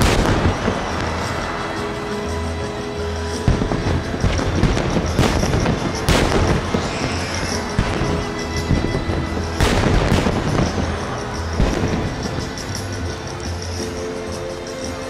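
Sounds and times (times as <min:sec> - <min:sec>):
fireworks booming: 0:00.0 - 0:13.2
music: 0:00.0 - 0:15.0.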